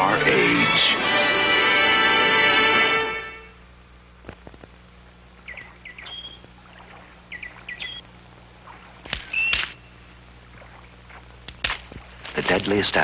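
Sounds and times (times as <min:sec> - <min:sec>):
faint steady hum: 0:00.0 - 0:13.0
birds chirping: 0:05.3 - 0:11.4
bird call with sharp clicks: 0:09.1 - 0:09.9.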